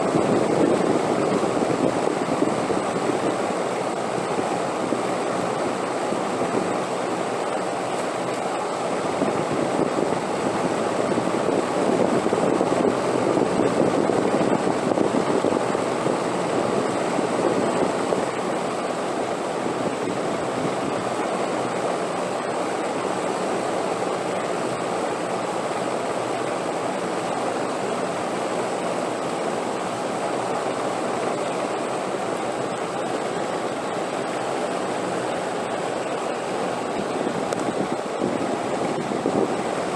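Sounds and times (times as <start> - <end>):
wind blowing: 8.8 - 21.7, 30.0 - 39.9.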